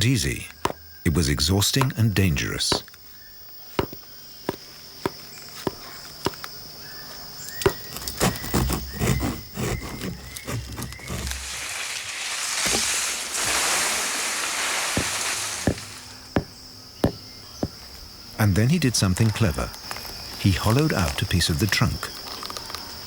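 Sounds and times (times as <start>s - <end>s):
high insect trill: 0.0s - 23.0s
blade chopping palm trunk: 0.6s - 0.8s, 2.7s - 2.9s, 3.8s - 6.5s, 7.5s - 17.9s
loud rustling: 7.6s - 18.1s.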